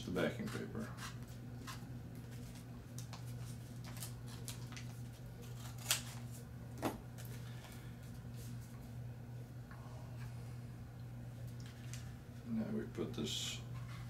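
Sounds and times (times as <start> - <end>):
low hum: 0.0 - 14.0
paper rustling: 1.6 - 6.4.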